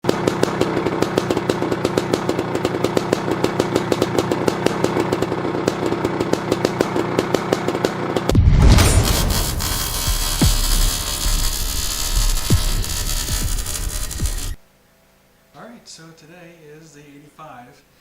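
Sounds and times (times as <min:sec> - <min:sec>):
motorcycle engine idling: 0:00.1 - 0:08.3.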